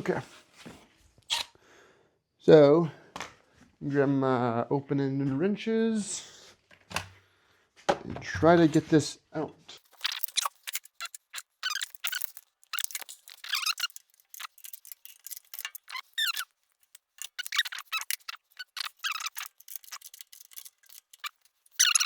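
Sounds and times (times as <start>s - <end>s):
steel squeaking on steel: 9.8s - 22.0s.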